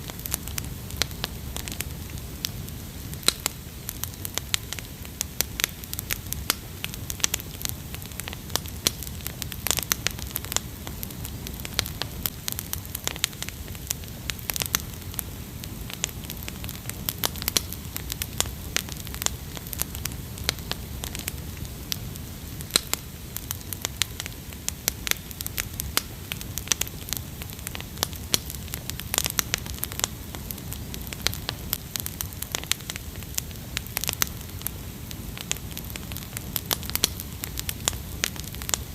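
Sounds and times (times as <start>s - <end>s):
low rumble of burning: 0.0s - 38.9s
wood fire crackling: 0.0s - 38.9s.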